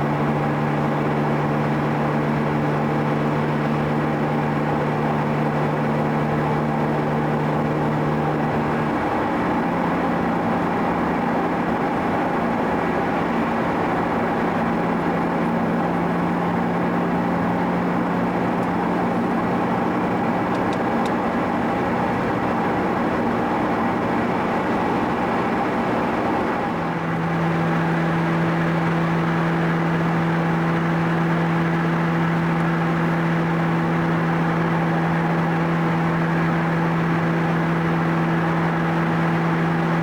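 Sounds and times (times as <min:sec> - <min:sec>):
car engine humming: 0:00.0 - 0:40.0
road noise: 0:00.0 - 0:40.0.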